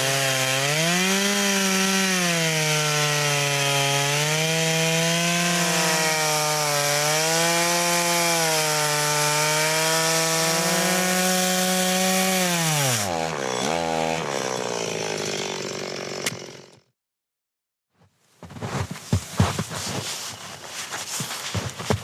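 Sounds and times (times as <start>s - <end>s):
chainsaw cutting wood: 0.0s - 16.9s.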